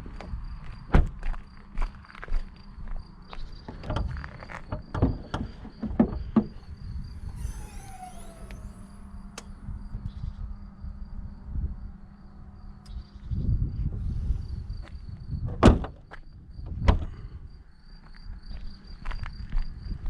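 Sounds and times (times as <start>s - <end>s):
car doors shutting: 3.6s - 9.6s, 15.5s - 16.0s
low rumbling: 3.7s - 15.5s.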